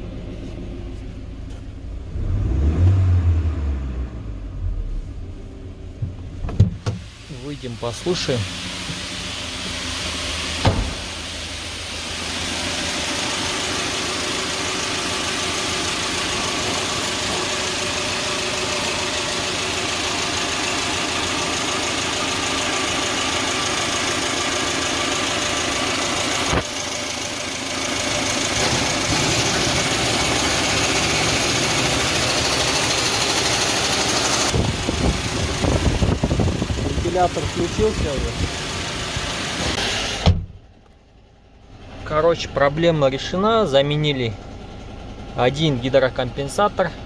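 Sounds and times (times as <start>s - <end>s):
car engine idling: 4.4s - 47.0s
car door thumping shut: 6.0s - 7.1s, 10.6s - 11.1s, 40.2s - 40.6s.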